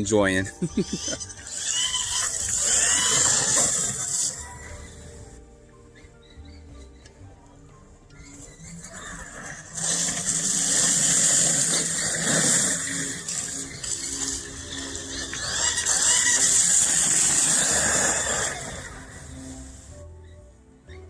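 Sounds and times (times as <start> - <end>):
tyres hissing over dirt: 0.6 - 4.6, 9.4 - 19.9
electric rc truck motor whining: 0.6 - 7.1, 8.1 - 21.0.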